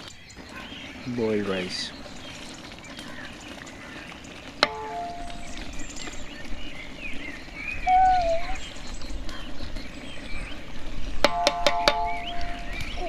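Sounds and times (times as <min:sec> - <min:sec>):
birds chirping: 0:00.0 - 0:13.0
metal utensil striking metal pot: 0:04.6 - 0:05.6, 0:11.2 - 0:12.6.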